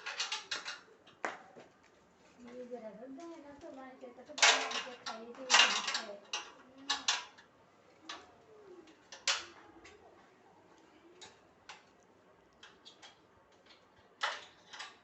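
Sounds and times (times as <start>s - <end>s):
clicks of small hard parts: 4.4s - 7.5s, 12.6s - 15.0s.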